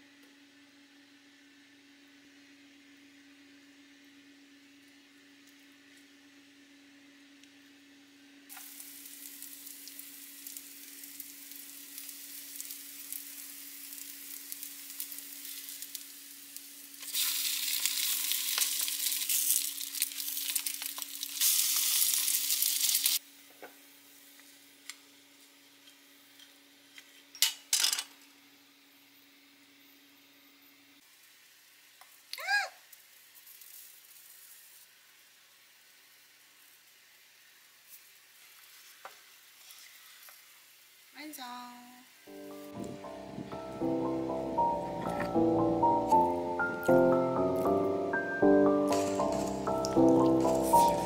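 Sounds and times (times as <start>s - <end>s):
batter sizzling in hot oil: 8.5s - 23.2s, 31.0s - 41.2s.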